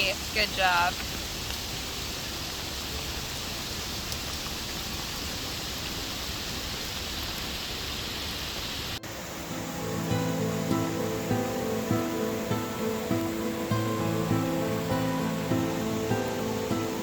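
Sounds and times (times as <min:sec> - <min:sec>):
heavy rain falling: 0:00.0 - 0:17.0
acoustic guitar music: 0:09.0 - 0:17.0.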